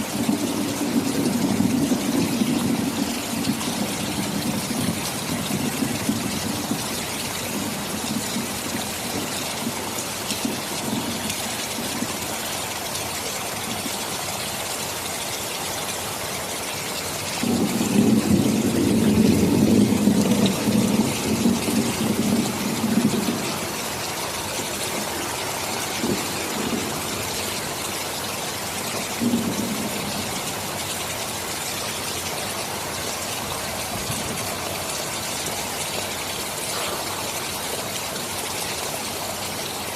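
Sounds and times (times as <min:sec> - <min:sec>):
thunder rumbling: 0:00.0 - 0:12.5, 0:17.3 - 0:35.9
heavy rain hissing: 0:00.0 - 0:39.9.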